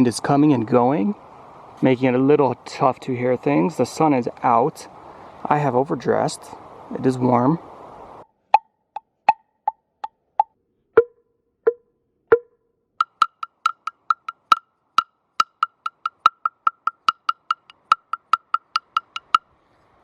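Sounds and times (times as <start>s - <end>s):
hollow wooden knocks: 9.0s - 19.4s.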